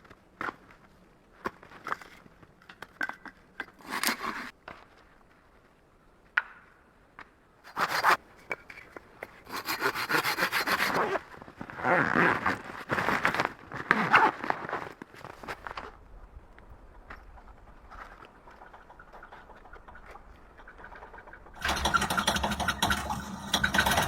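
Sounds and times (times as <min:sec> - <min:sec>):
rasping scraping strokes: 0:07.7 - 0:08.2, 0:09.4 - 0:11.2, 0:18.6 - 0:24.0
scattered clicks and knocks: 0:18.5 - 0:24.0.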